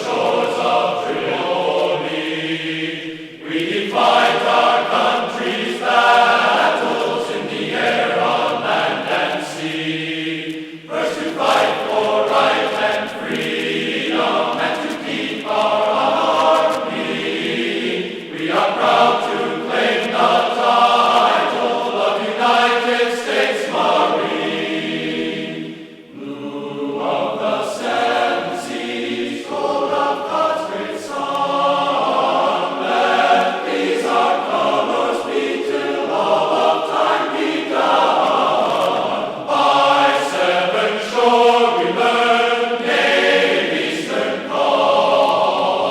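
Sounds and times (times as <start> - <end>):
choir singing: 0.0 - 45.9.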